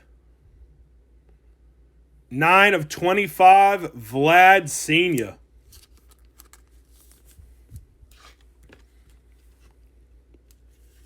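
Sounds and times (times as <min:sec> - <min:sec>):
steady low hum: 0:00.0 - 0:06.0
trading cards rustling: 0:05.0 - 0:11.0.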